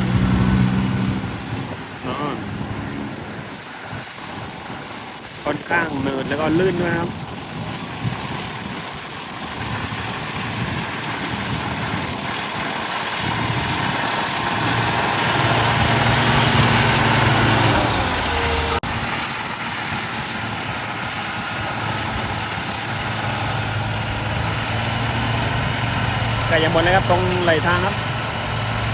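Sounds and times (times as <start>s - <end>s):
diesel engine under load: 0.0s - 28.9s.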